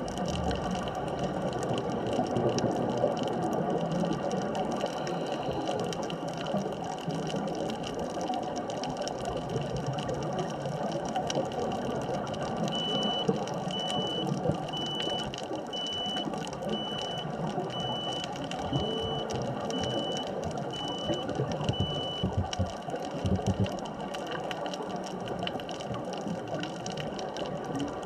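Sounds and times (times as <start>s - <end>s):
faint clicks: 0.0s - 28.0s
underwater hiss and rumble: 0.0s - 28.0s
high electronic beep: 12.8s - 22.6s.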